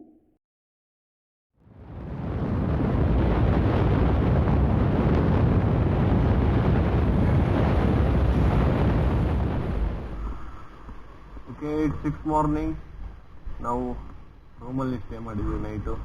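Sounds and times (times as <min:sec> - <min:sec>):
wind buffeting microphone: 0:01.7 - 0:13.6.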